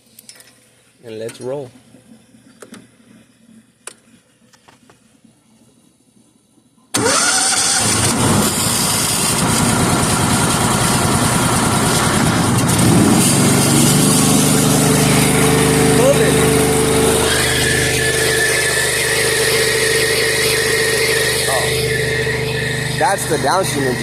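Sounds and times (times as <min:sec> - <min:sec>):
pressure washer engine running: 0:07.0 - 0:24.0.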